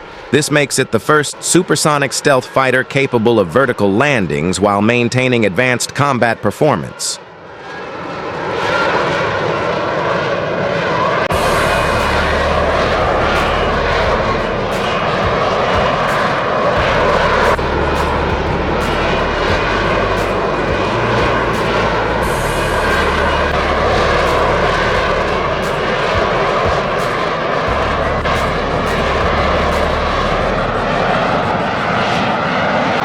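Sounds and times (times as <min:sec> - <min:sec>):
jet aircraft engine noise: 0:06.8 - 0:33.0.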